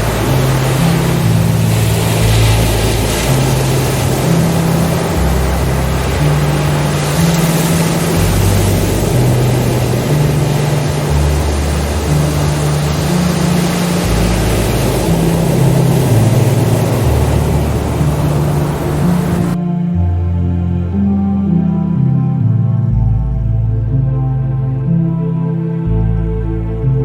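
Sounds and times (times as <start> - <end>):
steady wash of noise: 0.0 - 19.6
deep sustained synth notes: 0.0 - 27.0
low bass note: 0.0 - 27.0.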